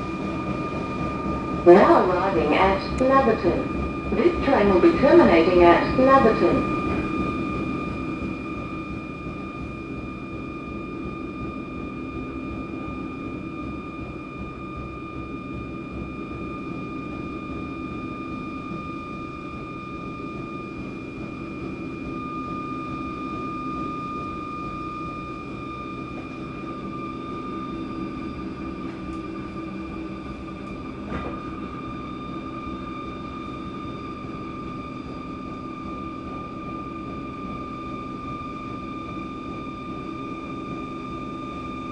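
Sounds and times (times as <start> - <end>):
train rumble: 0.0 - 8.4
high-pitched whine: 0.0 - 41.9.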